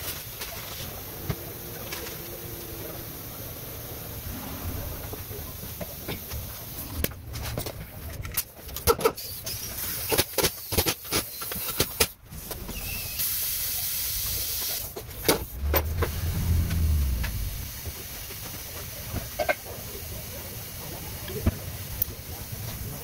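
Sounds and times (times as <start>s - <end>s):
hiss of escaping air: 12.3s - 18.4s
brief low hum: 15.2s - 18.3s.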